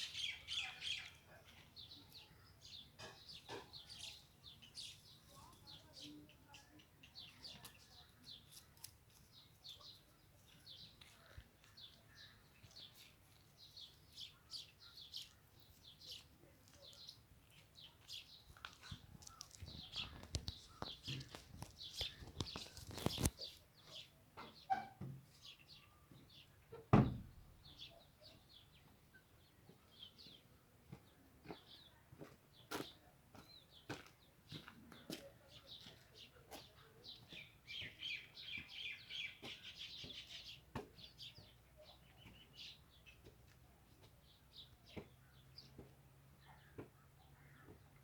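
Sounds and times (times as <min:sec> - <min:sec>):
birds chirping: 0:00.0 - 0:48.0
loud thump: 0:26.9 - 0:27.3.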